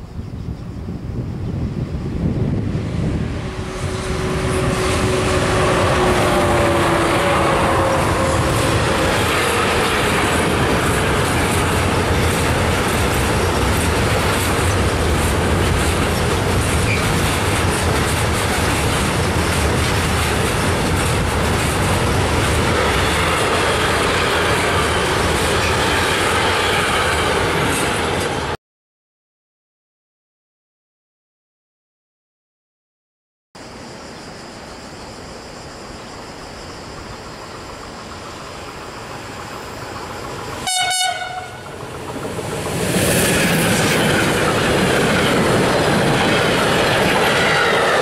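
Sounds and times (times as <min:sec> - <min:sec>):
electric locomotive tones: 0:02.2 - 0:17.8, 0:36.6 - 0:48.0
freight wagons clattering on rails: 0:07.9 - 0:26.2.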